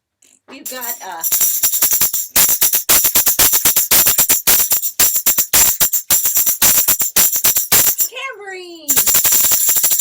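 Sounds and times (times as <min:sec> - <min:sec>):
tambourine jingling: 0:00.6 - 0:10.0.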